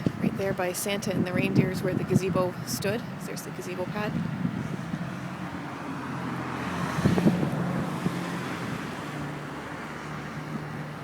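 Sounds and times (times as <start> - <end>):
low engine hum: 0.0 - 11.0
car passing: 3.2 - 11.0.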